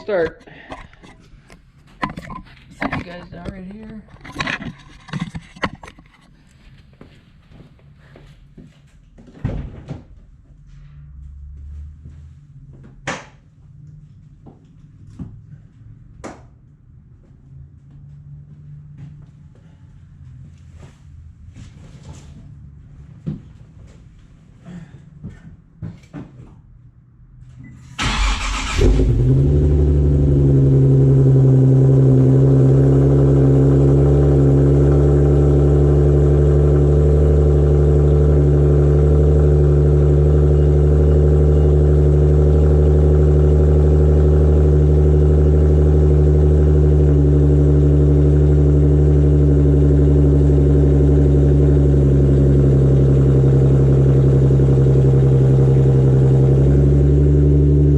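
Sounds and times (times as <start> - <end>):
starter cranking: 28.0 - 29.2
car engine idling: 28.0 - 57.9.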